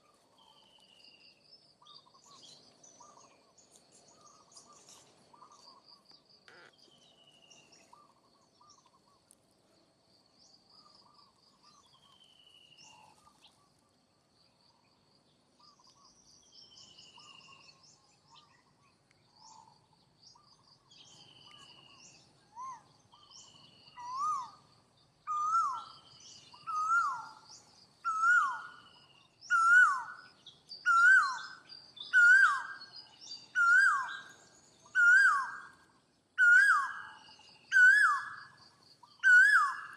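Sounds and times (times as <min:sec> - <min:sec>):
birds chirping: 0:00.0 - 0:09.2
loud whistled bird call: 0:21.4 - 0:24.6, 0:25.3 - 0:27.4, 0:28.1 - 0:35.8, 0:36.4 - 0:39.9.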